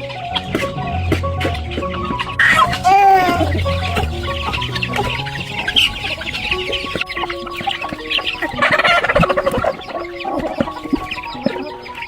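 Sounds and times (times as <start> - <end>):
soft background music: 0.0 - 12.0
chickens clucking: 0.2 - 12.0
chickens squawking: 2.4 - 12.0.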